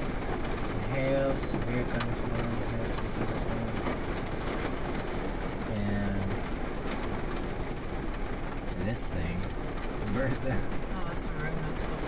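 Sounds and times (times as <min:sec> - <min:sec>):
heavy rain on car roof: 0:00.0 - 0:12.0.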